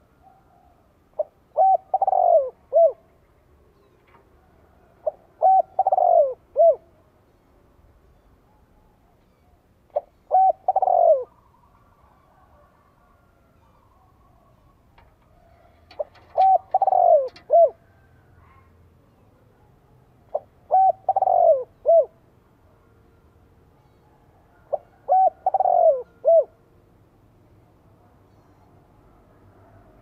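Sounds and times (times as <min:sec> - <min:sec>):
dove cooing: 0:00.2 - 0:03.1, 0:04.7 - 0:06.9, 0:09.9 - 0:18.7, 0:20.3 - 0:22.2, 0:24.6 - 0:26.6.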